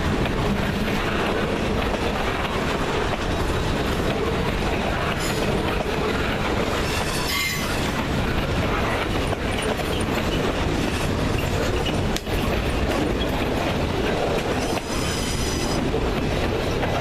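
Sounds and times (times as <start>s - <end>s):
freight train rolling past: 0.0s - 17.0s
high-pitched wheel squeal: 6.8s - 7.9s, 14.6s - 15.8s.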